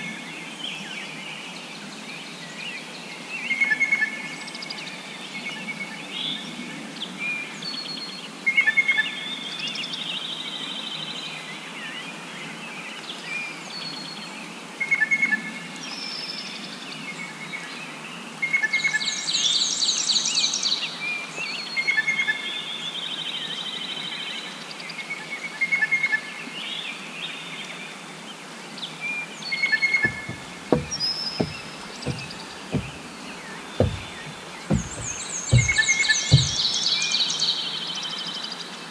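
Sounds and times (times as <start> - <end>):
low thumps: 30.0 - 36.7.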